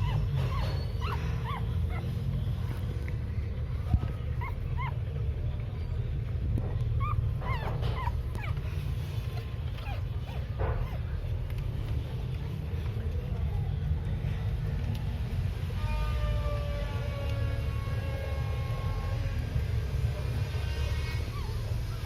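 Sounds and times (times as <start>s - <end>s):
dog whimpering: 0.0s - 2.4s, 4.3s - 5.1s, 7.0s - 11.2s, 21.0s - 21.8s.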